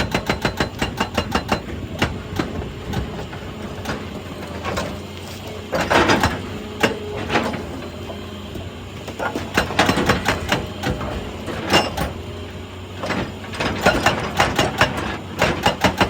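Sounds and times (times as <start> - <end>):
excavator engine running: 0.0 - 16.0
sharp clanks and knocks: 9.2 - 12.2, 13.0 - 16.0.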